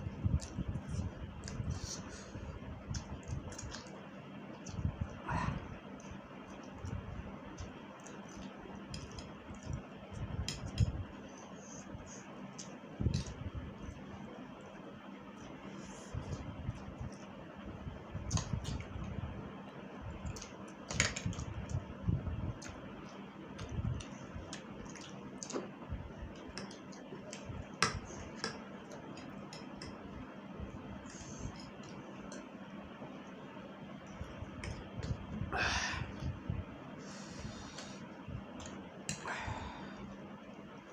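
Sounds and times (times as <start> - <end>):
person chewing noodles: 22.6 - 27.6.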